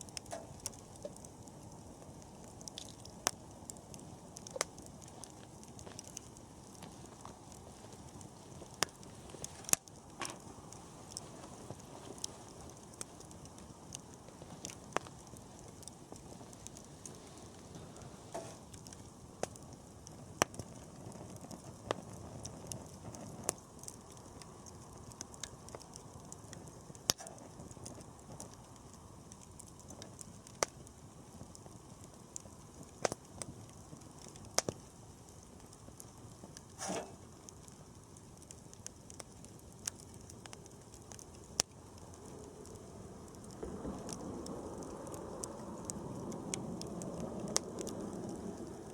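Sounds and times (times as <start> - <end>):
campfire flame rumble: 0.0 - 48.9
fire crackles and pops: 0.0 - 48.9.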